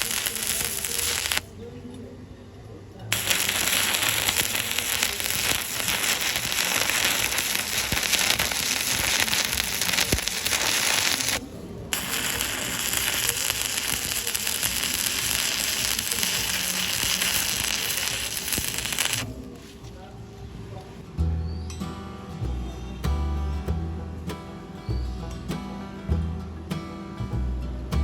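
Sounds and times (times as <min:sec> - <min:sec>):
welding arc crackling: 0:00.0 - 0:01.5, 0:03.1 - 0:19.3.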